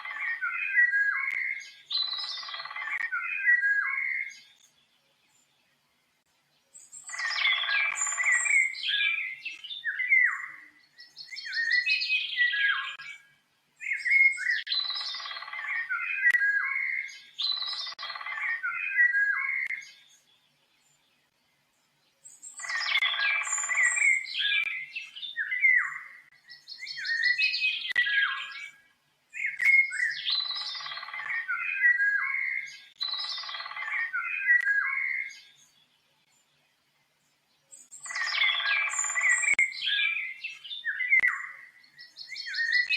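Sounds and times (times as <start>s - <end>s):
songbird singing: 0.0s - 42.9s.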